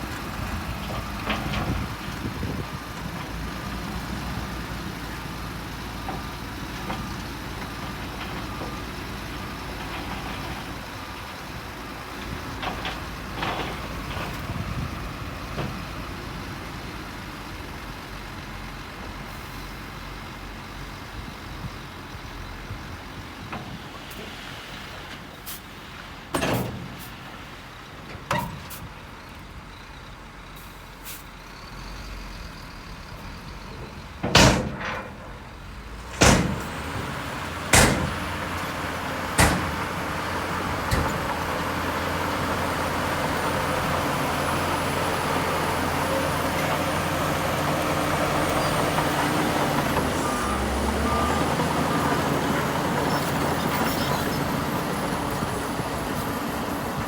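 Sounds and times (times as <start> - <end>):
diesel engine running under load: 0.0 - 57.0
loud metallic clanks: 34.2 - 35.4, 36.0 - 40.2.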